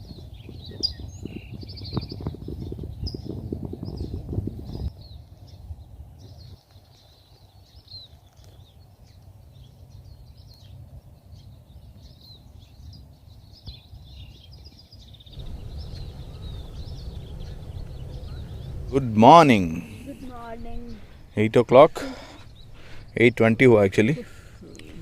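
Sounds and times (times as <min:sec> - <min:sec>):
small birds chirping: 0:00.0 - 0:25.0
low steady rumble: 0:15.4 - 0:25.0.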